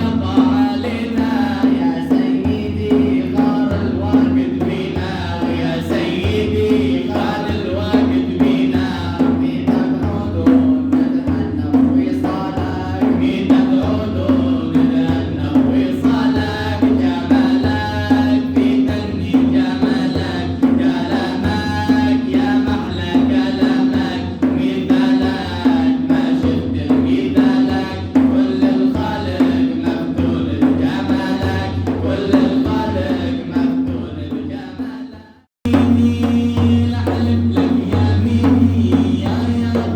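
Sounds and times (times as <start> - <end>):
male voices chanting: 0.0 - 39.9
regular drum beat: 0.0 - 39.9.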